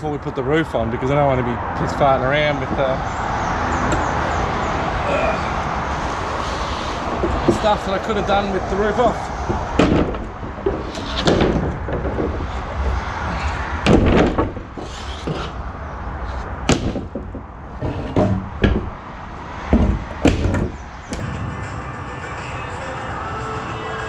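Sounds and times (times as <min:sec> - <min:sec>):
sharp knocks and thuds: 0:07.0 - 0:07.9, 0:09.0 - 0:15.6, 0:16.6 - 0:21.3.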